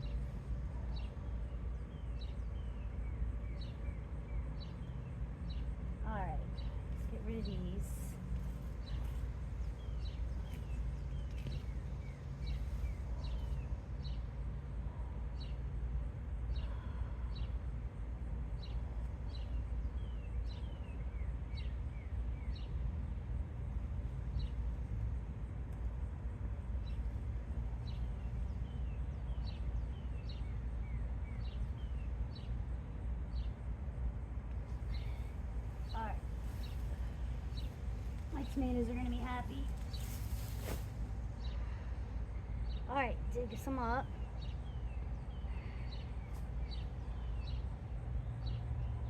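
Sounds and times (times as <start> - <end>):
birds chirping: 0.0 - 15.7, 16.4 - 22.9, 26.5 - 33.7, 34.5 - 49.0
steady low rumble: 0.0 - 49.0.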